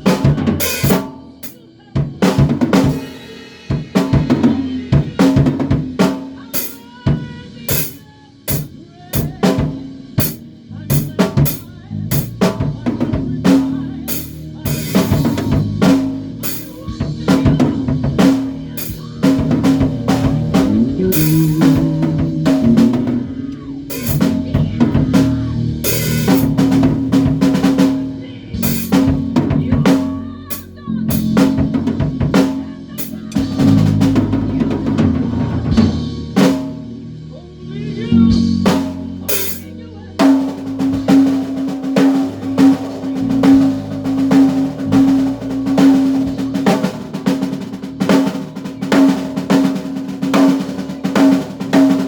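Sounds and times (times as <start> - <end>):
drum kit beat: 0.0 - 52.0
sustained low bass notes: 10.6 - 32.4, 40.1 - 48.0.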